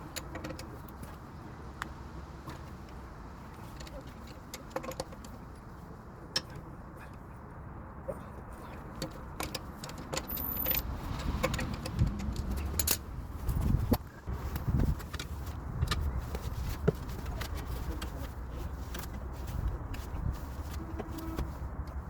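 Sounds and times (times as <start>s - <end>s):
low handling rumble: 10.8s - 18.2s.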